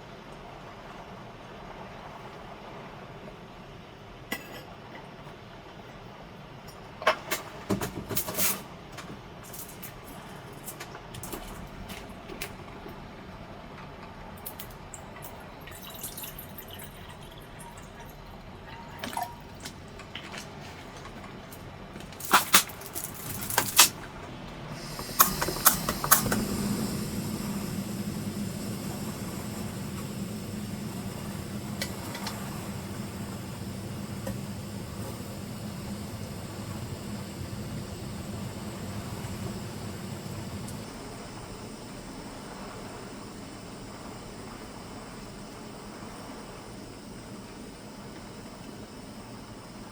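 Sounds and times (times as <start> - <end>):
low hum: 17.0 - 49.9
steady hiss: 24.6 - 46.2.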